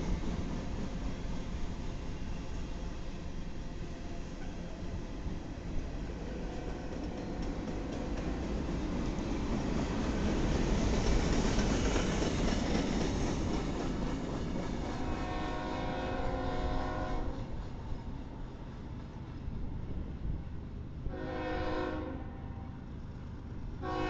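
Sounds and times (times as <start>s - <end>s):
freight cars rumbling on rails: 0.0s - 24.0s
locomotive chime horn: 14.9s - 17.4s, 21.1s - 22.8s, 23.8s - 24.0s.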